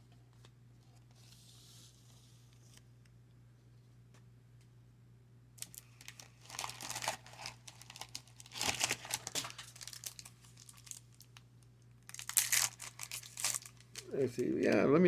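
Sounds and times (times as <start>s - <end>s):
wrapper crinkling and tearing: 5.6s - 11.4s, 12.0s - 14.2s.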